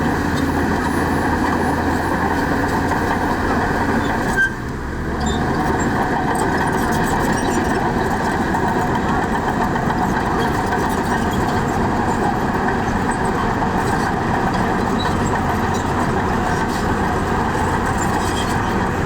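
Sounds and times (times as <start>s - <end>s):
heavy diesel engine running: 0.0s - 19.0s
short squeal: 4.0s - 4.6s.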